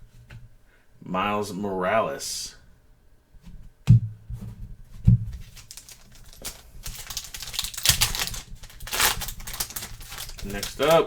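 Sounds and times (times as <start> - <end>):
wrapper crinkling: 5.4 - 11.0
cards clicking: 5.5 - 11.0.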